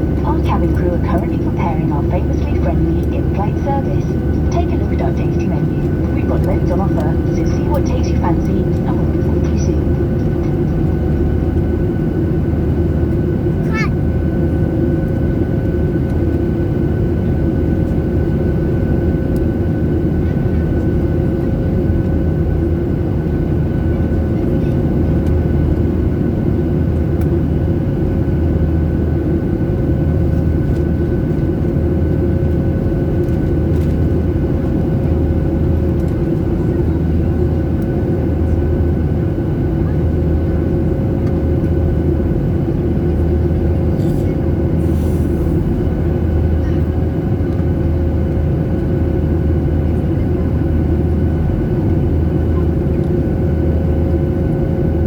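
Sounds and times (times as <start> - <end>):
jet engines heard inside cabin: 0.0 - 55.0.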